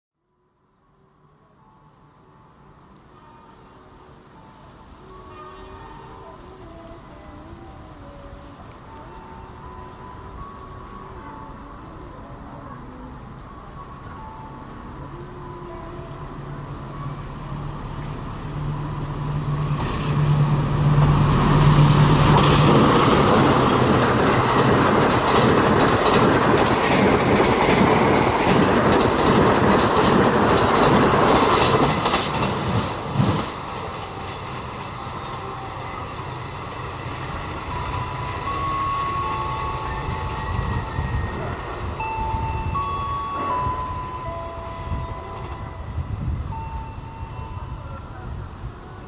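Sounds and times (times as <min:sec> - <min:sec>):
diesel locomotive hum: 0:00.6 - 0:49.0
train rolling noise: 0:01.0 - 0:49.0
train wheels clickety-clack: 0:19.7 - 0:35.5.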